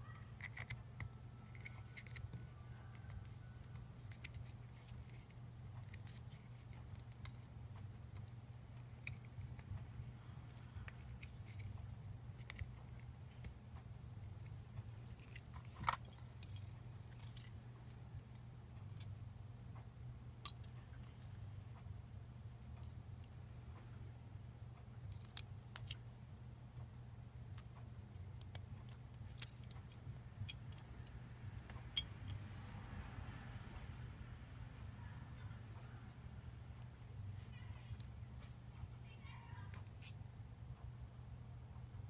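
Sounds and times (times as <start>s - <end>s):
steady low hum: 0.0s - 42.0s
small clicks and taps of parts: 0.4s - 9.9s, 10.5s - 19.2s, 20.4s - 21.4s, 25.1s - 26.0s, 27.5s - 32.4s.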